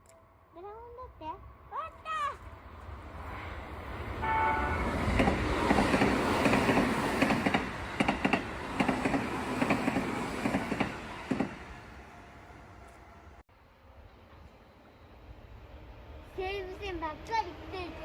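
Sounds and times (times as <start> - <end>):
train horn blast: 4.2 - 5.1
train wheels clacking on rails: 4.8 - 11.7.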